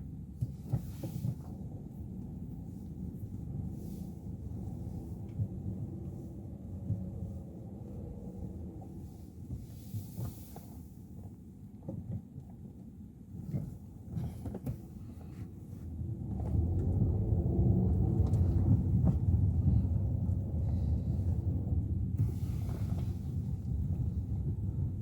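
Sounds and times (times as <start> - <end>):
road and engine rumble in car: 0.0 - 25.0.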